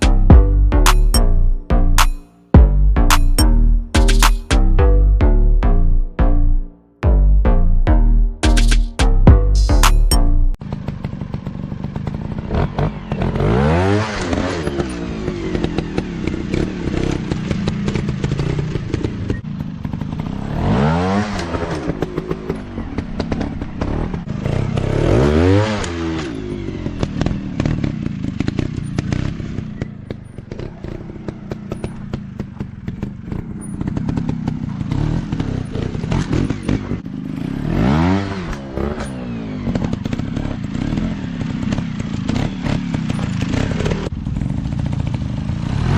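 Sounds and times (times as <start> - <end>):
dirt bike engines revving: 10.7 - 45.9.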